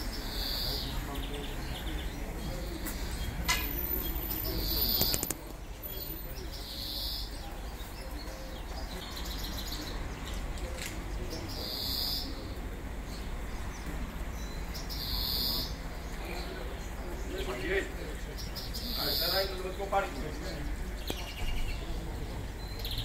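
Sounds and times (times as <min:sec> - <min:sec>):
bird calling: 0:00.0 - 0:05.4, 0:06.0 - 0:09.9, 0:11.4 - 0:12.6, 0:14.4 - 0:22.0.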